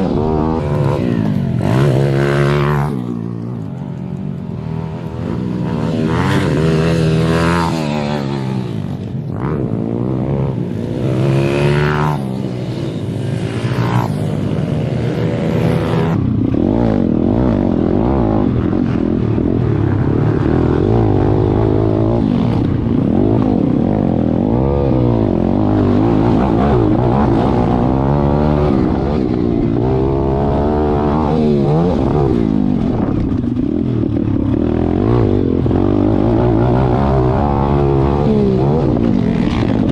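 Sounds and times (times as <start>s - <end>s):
pit bike engines revving: 0.0s - 39.9s.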